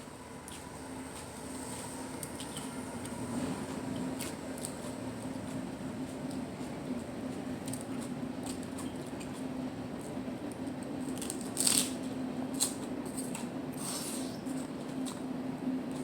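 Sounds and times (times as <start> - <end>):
steady low hum: 0.0 - 16.0
crisp crunches of chewing salad: 1.2 - 2.8, 11.0 - 15.2.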